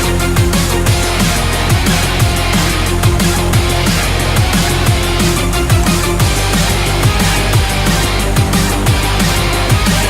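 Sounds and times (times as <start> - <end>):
electronic music with driving beat: 0.0 - 10.0
falling bass slides: 0.0 - 10.0.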